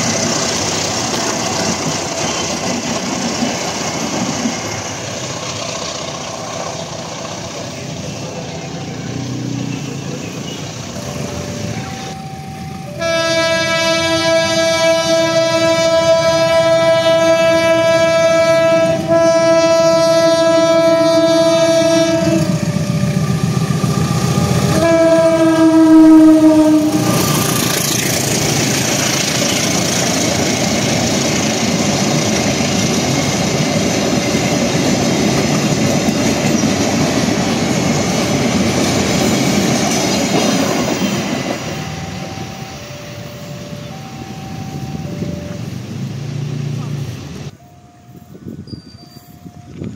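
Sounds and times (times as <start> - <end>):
train rumble and wheel clatter: 0.0 - 49.9
train air horn blasts: 12.8 - 23.0, 24.6 - 27.6.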